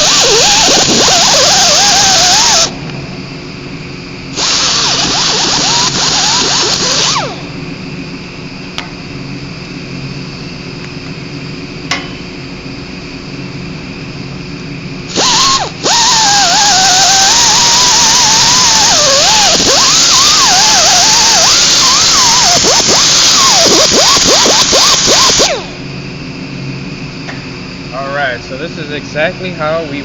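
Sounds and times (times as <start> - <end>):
power sander grinding on metal: 0.0 - 2.7, 15.1 - 25.6
steady hum: 0.0 - 30.0.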